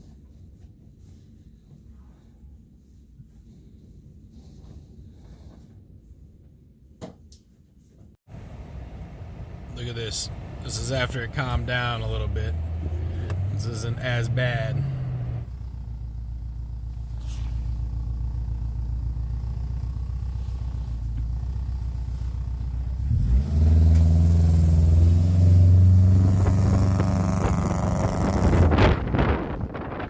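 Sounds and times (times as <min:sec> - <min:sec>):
car engine revving: 0:08.3 - 0:29.2.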